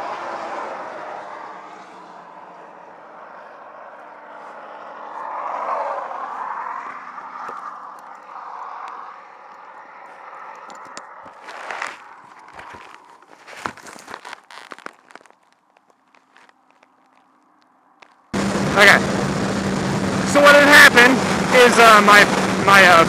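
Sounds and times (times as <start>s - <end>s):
highway traffic passing: 0.0s - 23.0s
sharp knocks and scrapes: 9.5s - 15.2s.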